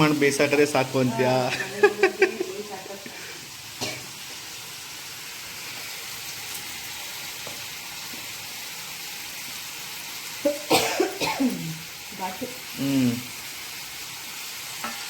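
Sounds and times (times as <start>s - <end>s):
chicken frying in oil: 0.0s - 15.0s
utensil striking pan: 14.8s - 15.0s.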